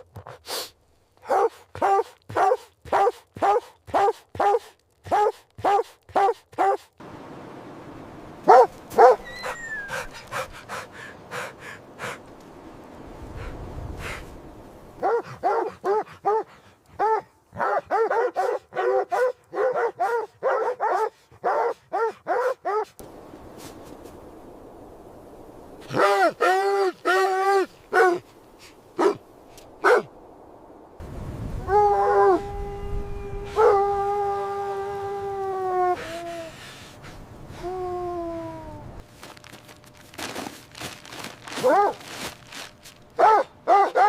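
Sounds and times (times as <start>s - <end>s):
dog barking: 1.2s - 6.9s, 8.5s - 10.5s, 15.0s - 23.0s, 27.9s - 28.2s, 29.0s - 29.2s, 29.8s - 30.1s, 41.6s - 42.0s, 43.2s - 44.0s.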